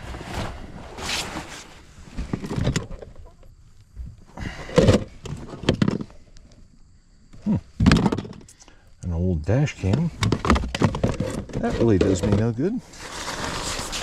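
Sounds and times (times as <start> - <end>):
rummaging through compartments: 9.8 - 14.0.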